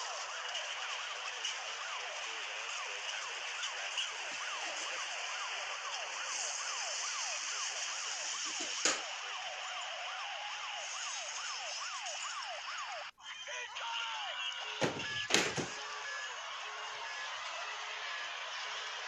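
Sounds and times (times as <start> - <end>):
siren sweeping downward: 0.0 - 13.1.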